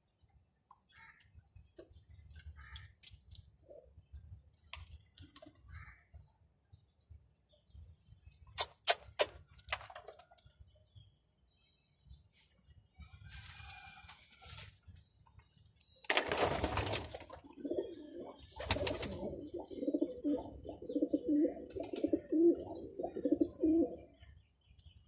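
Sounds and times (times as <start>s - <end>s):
pigeon cooing: 17.6s - 24.1s.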